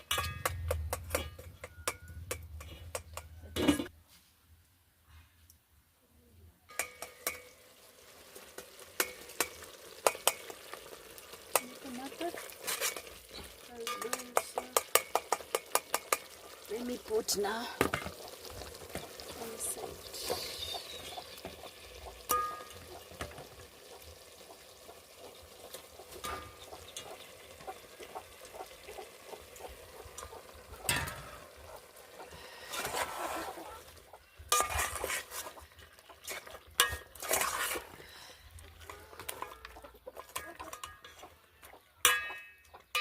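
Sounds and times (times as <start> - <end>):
spoon scraping metal pot: 0.0 - 3.9, 11.5 - 17.0, 30.0 - 41.4
utensils knocking cookware: 0.0 - 3.9, 42.1 - 43.0.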